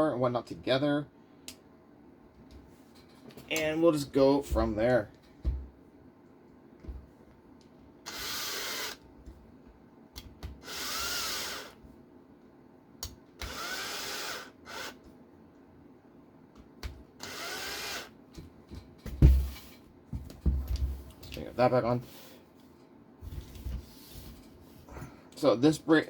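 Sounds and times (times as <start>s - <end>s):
electric screwdriver driving screws: 8.1s - 9.0s, 10.6s - 11.8s, 13.4s - 15.0s, 17.2s - 18.1s
knock: 19.1s - 19.5s.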